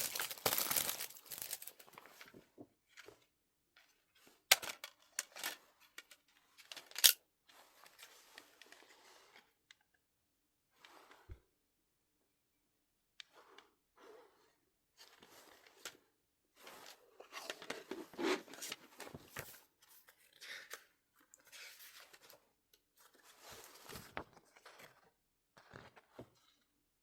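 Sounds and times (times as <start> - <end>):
packaging tearing and crinkling: 0.0 - 2.0.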